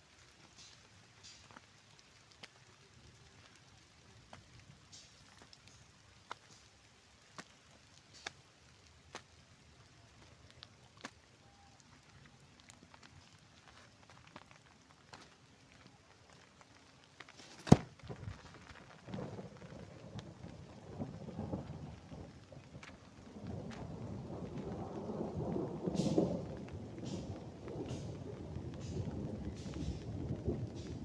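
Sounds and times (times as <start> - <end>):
rolling rumble: 11.8 - 31.0
sharp crack: 17.3 - 19.3.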